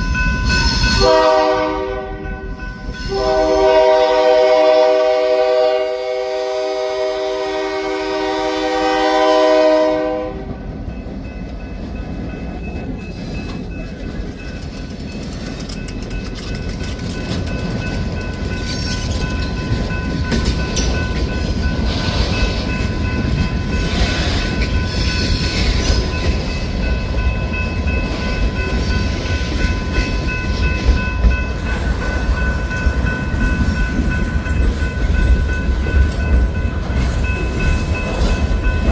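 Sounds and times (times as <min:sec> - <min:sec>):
train wheels rumbling on rails: 0:00.0 - 0:38.9
locomotive air horn chord: 0:00.9 - 0:10.5.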